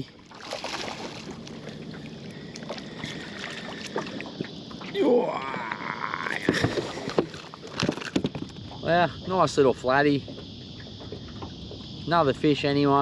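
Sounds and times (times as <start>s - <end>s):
clicks and knocks of gear: 6.6s - 8.7s.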